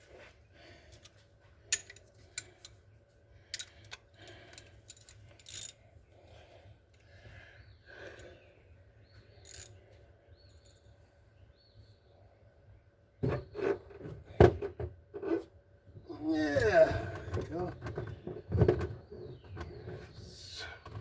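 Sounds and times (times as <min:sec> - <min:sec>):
metal tools clinking: 0:01.7 - 0:02.8, 0:03.5 - 0:05.8, 0:09.4 - 0:09.8, 0:10.5 - 0:10.9.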